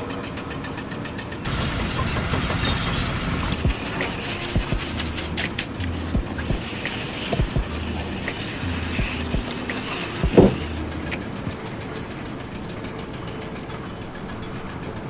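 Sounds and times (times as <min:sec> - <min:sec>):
low mechanical hum: 0:00.0 - 0:15.0
irregular knocks and clicks: 0:09.0 - 0:11.6.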